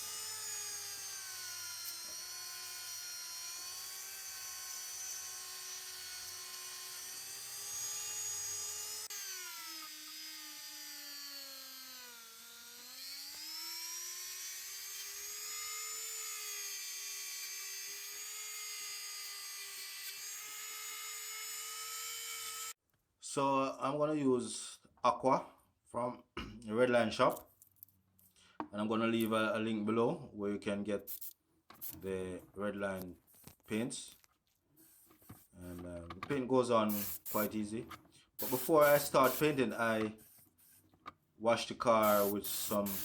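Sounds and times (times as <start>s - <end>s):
rotary tool polishing metal: 0.0s - 22.8s, 31.1s - 32.0s, 34.8s - 35.8s, 36.9s - 37.6s, 38.4s - 41.0s, 41.9s - 43.0s.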